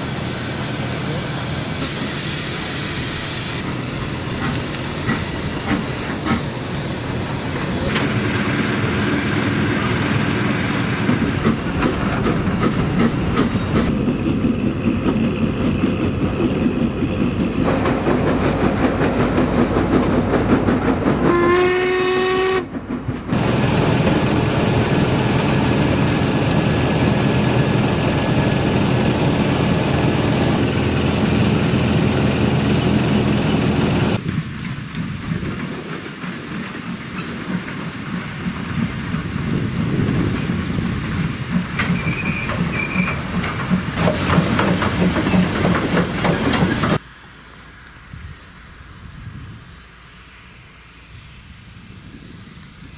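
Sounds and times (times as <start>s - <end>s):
steam locomotive running: 0.0s - 50.4s
steam whistle blast: 21.3s - 22.7s.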